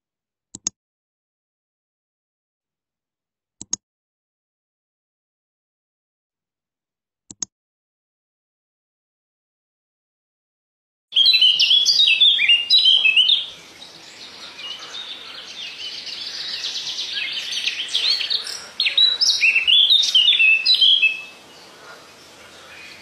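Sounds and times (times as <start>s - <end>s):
birds chirping softly: 11.2s - 23.0s
loud bird song: 11.2s - 23.0s.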